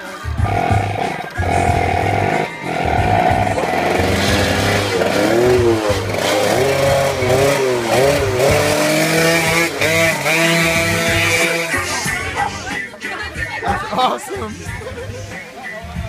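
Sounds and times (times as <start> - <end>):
motorcycle engine revving: 0.0 - 12.7.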